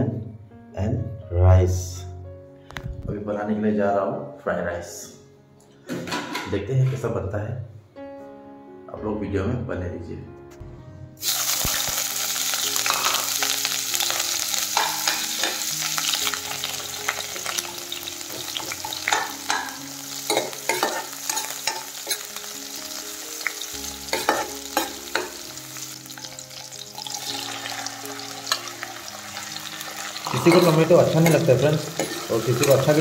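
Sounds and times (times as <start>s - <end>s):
onions sizzling in hot oil: 11.2s - 33.0s
metal ladle scraping a wok: 29.9s - 32.9s.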